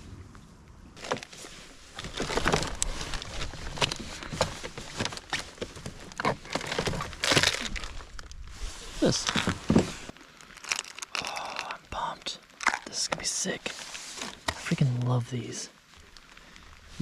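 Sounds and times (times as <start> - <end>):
plastic packaging crinkling: 1.0 - 8.4, 9.0 - 13.0.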